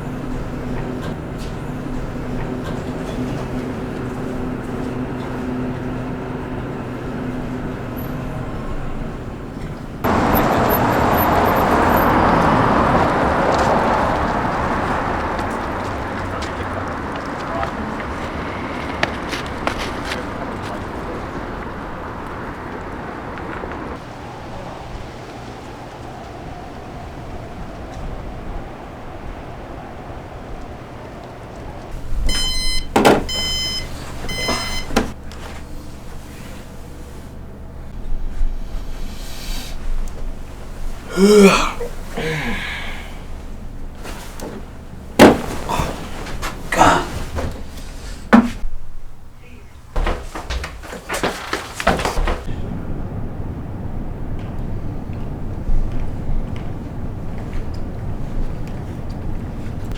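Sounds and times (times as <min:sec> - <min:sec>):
person gasping or sneezing: 0:41.1 - 0:43.2, 0:45.6 - 0:46.1, 0:46.7 - 0:47.3.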